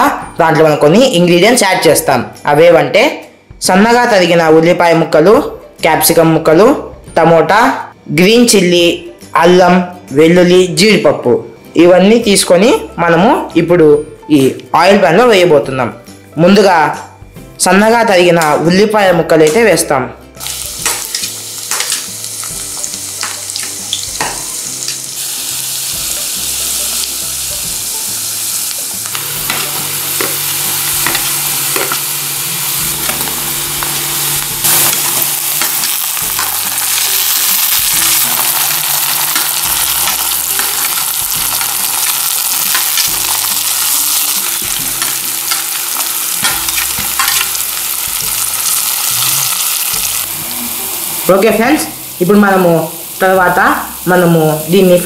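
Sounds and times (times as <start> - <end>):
onion sizzling in hot oil: 20.4 - 55.0.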